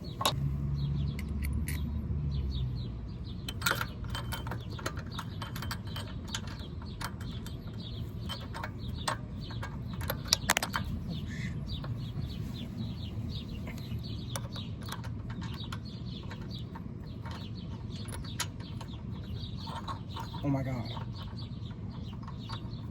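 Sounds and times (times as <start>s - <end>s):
birds chirping: 0.0s - 22.9s
small metal parts clinking: 3.4s - 12.1s, 13.4s - 22.9s.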